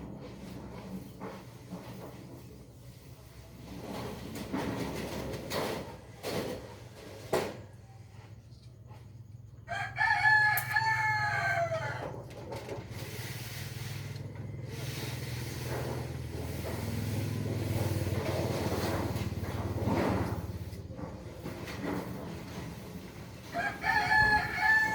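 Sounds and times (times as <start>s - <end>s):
rooster crowing: 9.6s - 12.2s, 23.4s - 24.9s.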